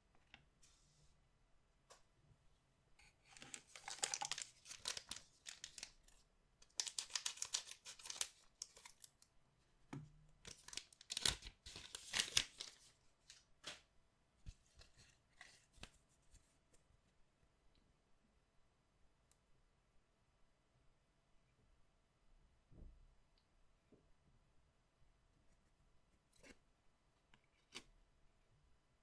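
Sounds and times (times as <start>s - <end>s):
card pack wrappers tearing and crinkling: 3.4s - 6.0s, 6.6s - 9.1s, 10.5s - 13.4s.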